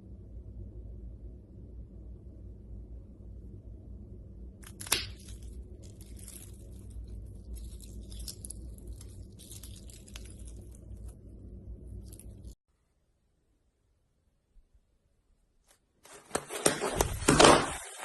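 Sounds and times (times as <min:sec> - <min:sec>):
steady low hum: 0:00.0 - 0:15.2
slime crackling and popping: 0:04.6 - 0:11.3.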